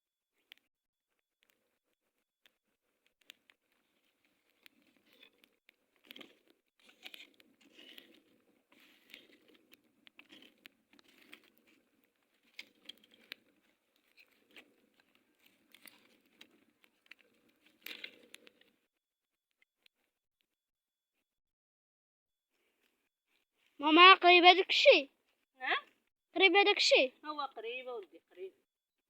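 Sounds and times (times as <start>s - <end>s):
faint crackling and rustling: 0.3s - 20.2s, 22.5s - 26.1s
small clicks: 1.4s - 18.8s.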